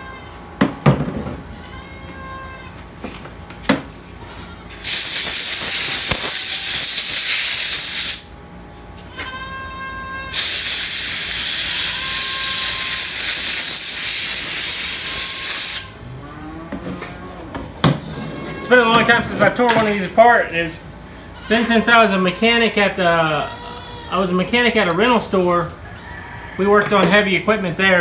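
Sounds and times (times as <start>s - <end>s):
hissing spray of pressurized air: 4.7s - 8.3s, 10.3s - 16.0s.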